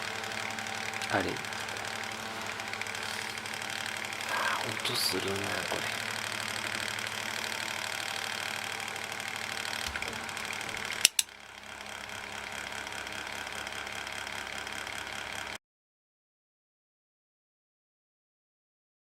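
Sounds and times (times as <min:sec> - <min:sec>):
electric fan rattling clunk: 0:00.0 - 0:11.7
sharp clicks: 0:11.0 - 0:11.3.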